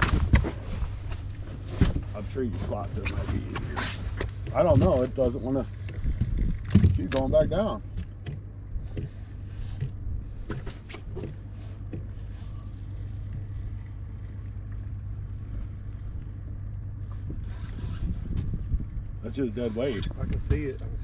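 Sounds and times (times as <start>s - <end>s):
light clicks and rattles: 1.1s - 21.0s
wind rumble on microphone: 5.8s - 7.8s, 17.2s - 21.0s.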